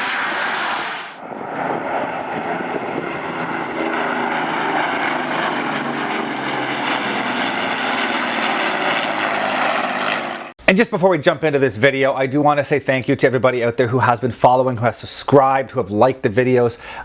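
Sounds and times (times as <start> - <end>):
airplane engine drone: 0.0 - 10.6.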